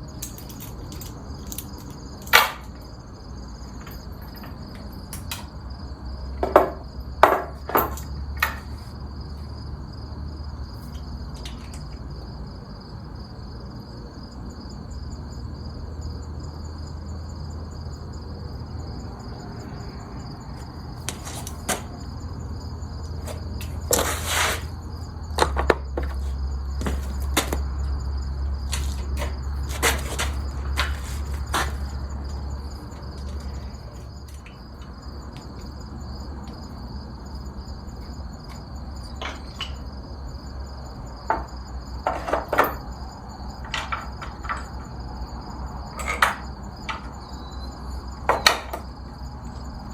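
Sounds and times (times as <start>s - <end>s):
insects trilling: 0.0s - 49.9s
rattle: 6.4s - 8.8s
sharp knocks and clicks: 43.6s - 45.0s, 48.3s - 48.9s.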